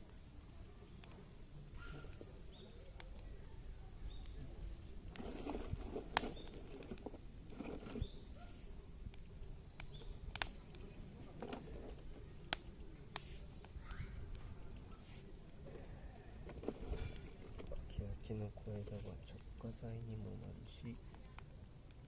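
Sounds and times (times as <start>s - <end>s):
campfire crackling and popping: 0.0s - 22.0s
faint bird chirps: 0.6s - 5.5s, 7.6s - 8.8s, 9.6s - 22.0s
soft rustling: 4.8s - 9.3s.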